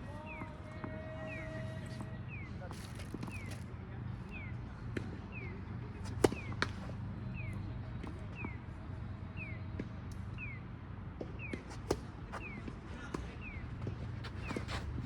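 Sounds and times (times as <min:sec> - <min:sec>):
tennis ball struck by rackets: 0:06.0 - 0:06.9.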